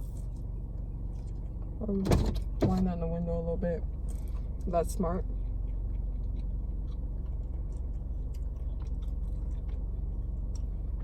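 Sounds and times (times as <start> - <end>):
steady low hum: 0.0 - 11.0
person chewing: 5.2 - 11.0.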